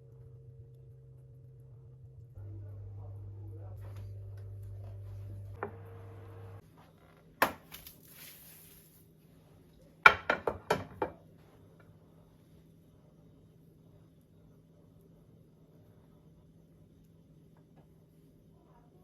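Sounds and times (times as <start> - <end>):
low steady hum: 0.0 - 10.0
kitchenware knocking and clinking: 10.0 - 11.2.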